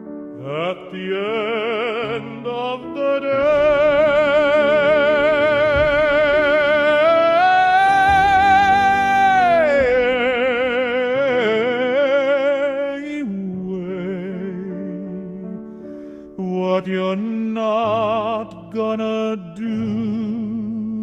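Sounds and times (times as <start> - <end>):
operatic high voice singing: 0.4 - 15.4
sustained lower accompaniment: 0.4 - 15.7.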